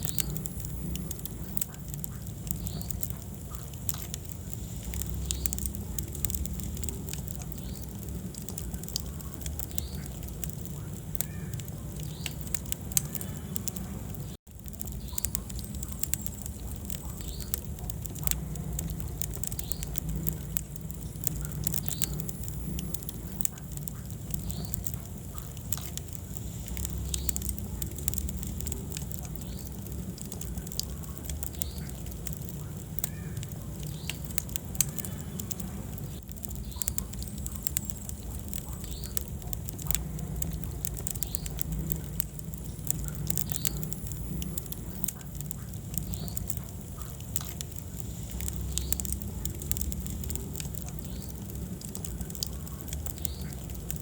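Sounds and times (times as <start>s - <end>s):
low rumble of flames: 0.0s - 54.0s
wood fire crackling and popping: 0.0s - 54.0s.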